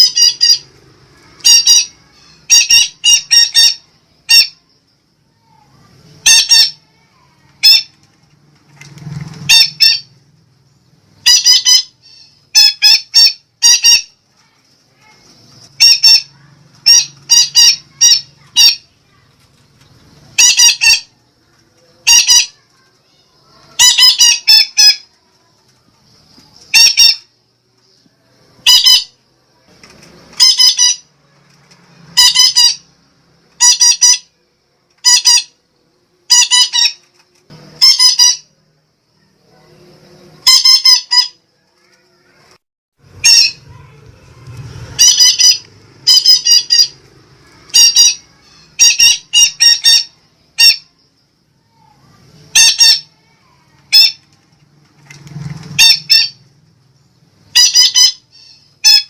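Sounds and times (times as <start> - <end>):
parakeet squawking: 0.0 - 4.7, 6.2 - 7.0, 7.6 - 8.0, 9.5 - 10.1, 11.2 - 14.2, 14.9 - 19.2, 20.2 - 21.2, 21.9 - 22.7, 23.4 - 25.1, 26.7 - 27.3, 28.6 - 29.2, 30.3 - 31.1, 32.1 - 33.0, 33.6 - 34.3, 35.0 - 35.6, 36.3 - 37.0, 37.8 - 38.5, 40.4 - 42.0, 43.1 - 51.0, 51.8 - 54.3, 55.8 - 56.4, 57.5 - 59.0.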